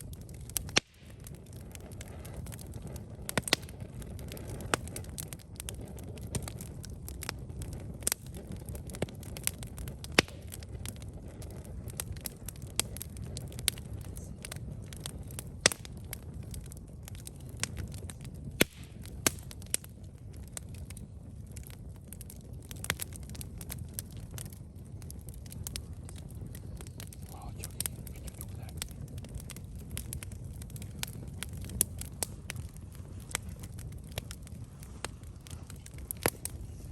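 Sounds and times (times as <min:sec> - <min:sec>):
burning wood crackling and popping: 0:00.0 - 0:36.9
low rumble of flames: 0:00.0 - 0:36.9.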